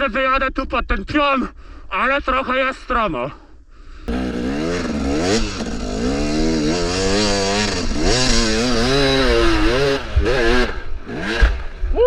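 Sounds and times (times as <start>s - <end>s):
dirt bike engine revving: 4.1s - 11.9s.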